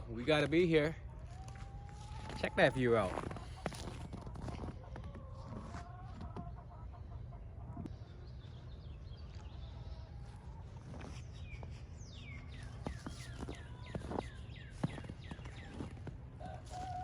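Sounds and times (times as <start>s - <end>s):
bird chirping: 7.9s - 16.6s.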